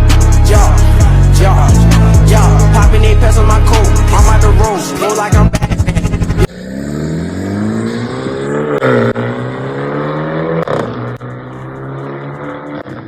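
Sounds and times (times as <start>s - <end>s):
car engine accelerating: 5.3s - 13.0s.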